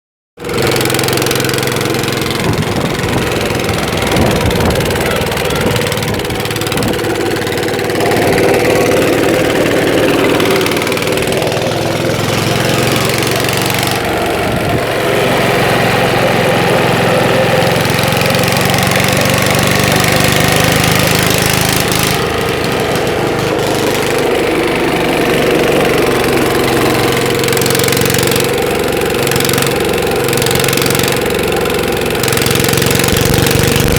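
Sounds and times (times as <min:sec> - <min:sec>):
stationary engine knocking: 0:00.4 - 0:33.9.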